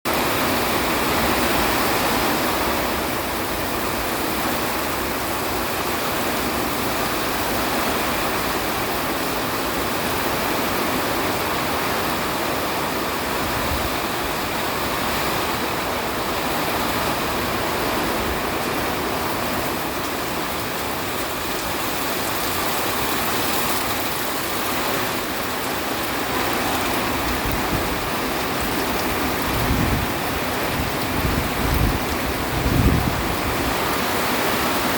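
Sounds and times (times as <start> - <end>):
heavy rain: 0.1 - 34.9
hurricane wind: 0.1 - 34.9.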